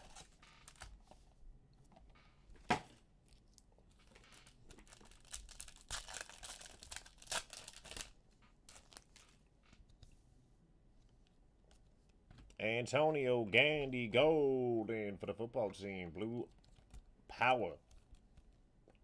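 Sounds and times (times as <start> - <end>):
card packs tearing and crinkling: 4.3 - 8.1.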